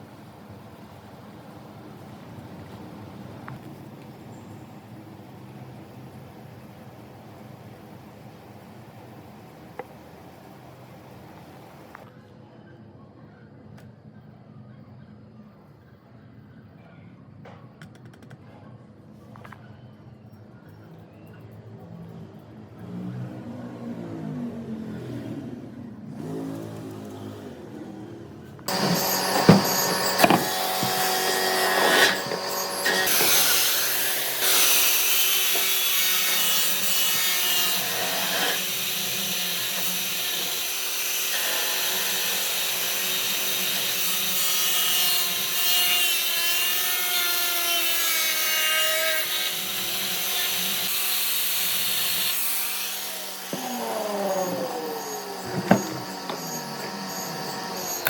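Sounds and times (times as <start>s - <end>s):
tool scraping turning wood: 28.7s - 42.2s, 51.9s - 58.0s
lathe spinning: 28.7s - 44.1s.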